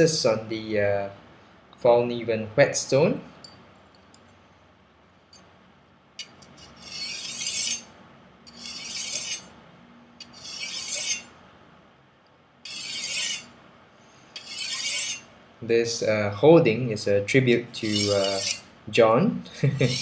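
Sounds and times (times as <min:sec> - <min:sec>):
knife grating on whetstone: 0:06.2 - 0:07.9, 0:08.5 - 0:09.5, 0:10.2 - 0:11.3, 0:12.7 - 0:13.5, 0:14.4 - 0:15.3, 0:17.6 - 0:18.7, 0:19.8 - 0:20.0.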